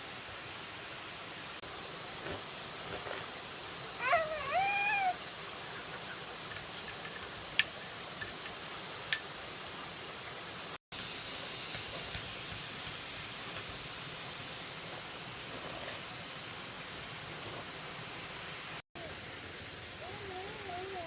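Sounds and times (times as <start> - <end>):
steady high hiss: 0.0 - 21.0.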